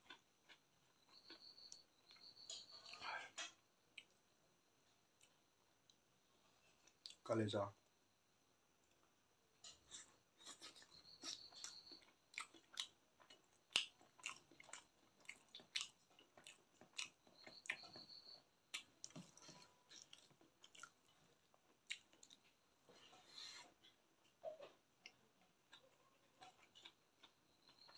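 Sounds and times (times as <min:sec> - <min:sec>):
wet chewing mouth clicks: 0:10.4 - 0:17.8, 0:21.9 - 0:22.5.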